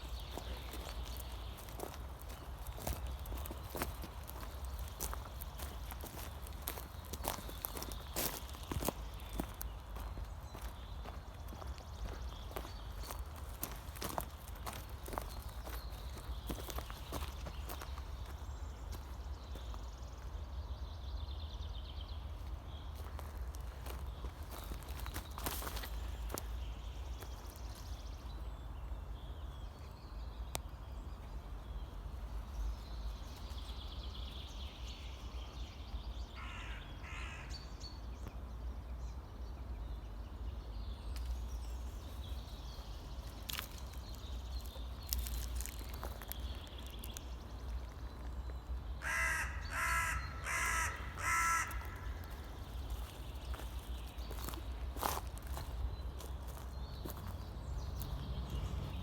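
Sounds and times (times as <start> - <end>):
faint high birdsong: 0.0 - 59.0
harsh bird calls: 48.9 - 57.2.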